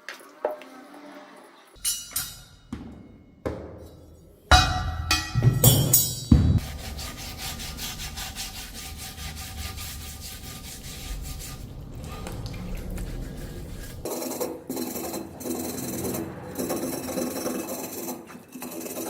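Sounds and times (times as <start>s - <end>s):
sharp knocks: 4.5s - 6.9s
hand sanding strokes: 6.6s - 19.0s.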